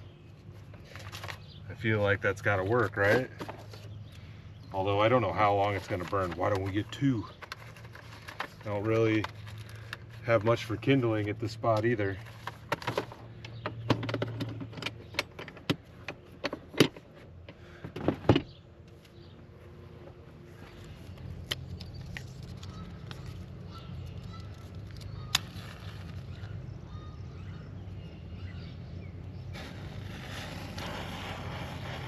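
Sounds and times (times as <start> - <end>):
fire rushing and crackling: 29.5 - 32.0
matchbook flaring up: 29.5 - 32.0
match striking: 29.6 - 32.0.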